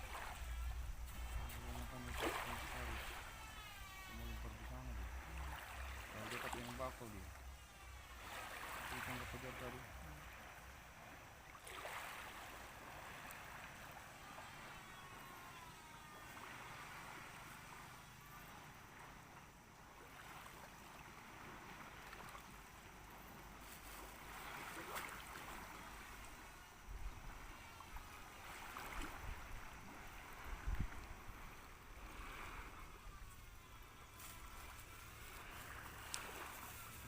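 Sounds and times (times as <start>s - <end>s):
water washing along shore: 0.0s - 37.0s.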